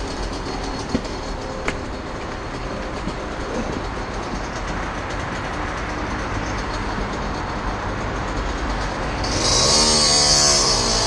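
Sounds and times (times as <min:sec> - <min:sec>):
dirt bike engine revving: 0:09.2 - 0:11.0.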